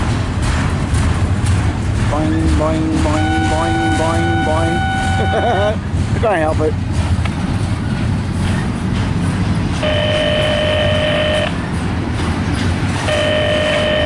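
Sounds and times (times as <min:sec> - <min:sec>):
train wheels rumbling on rail: 0:00.0 - 0:14.0
long horn tones: 0:03.0 - 0:05.7, 0:09.8 - 0:11.6, 0:13.1 - 0:14.0.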